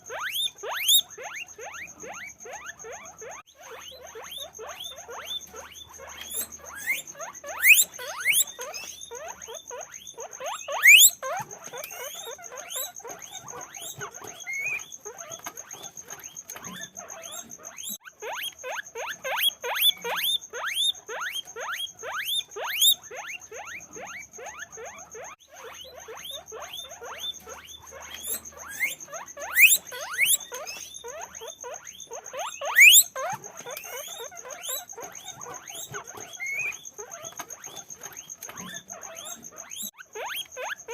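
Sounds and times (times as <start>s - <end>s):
guinea pig squeals: 0.0s - 40.9s
guinea pigs squeaking: 0.0s - 40.9s.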